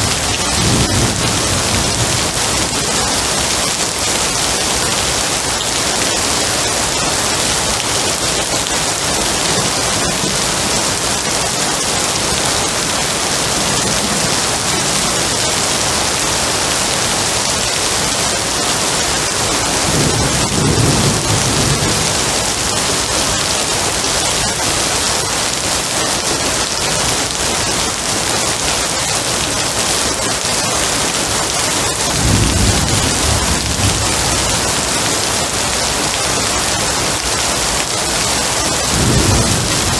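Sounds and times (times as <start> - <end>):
distant thunder rolling: 0.0 - 3.9
heavy rain hissing: 0.0 - 39.9.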